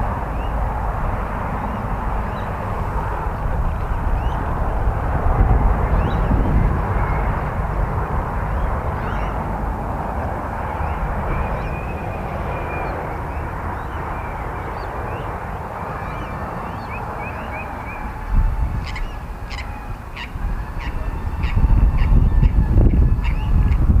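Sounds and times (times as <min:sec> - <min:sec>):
wind buffeting microphone: 0:00.0 - 0:24.0
birds chirping: 0:01.5 - 0:04.8, 0:05.8 - 0:09.6, 0:10.4 - 0:23.9
bird sharp calls: 0:08.6 - 0:09.4, 0:18.8 - 0:23.8.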